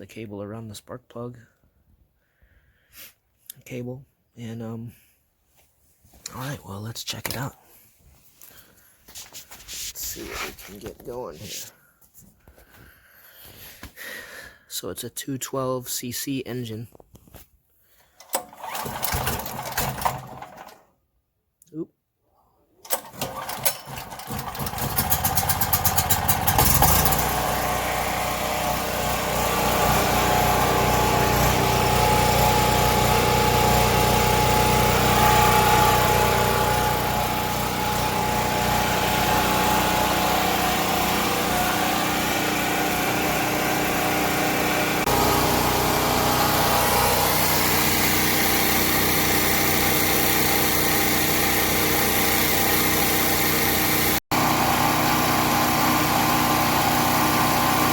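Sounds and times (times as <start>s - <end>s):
generator engine starting and running: 17.8s - 21.0s, 22.8s - 57.9s.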